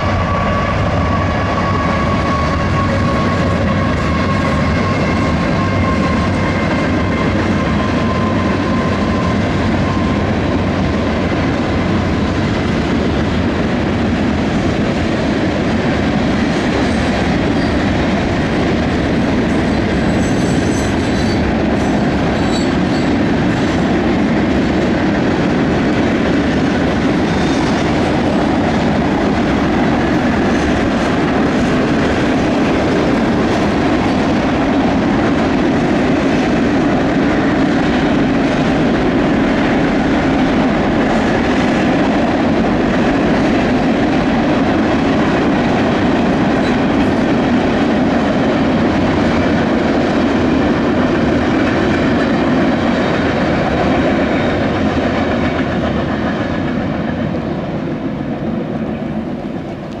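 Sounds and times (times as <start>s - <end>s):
steel wheels running on rails: 0.0s - 60.0s.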